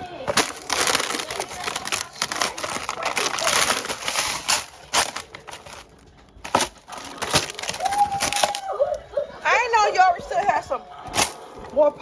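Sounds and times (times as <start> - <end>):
packaging crinkling and rattling: 0.1 - 9.0.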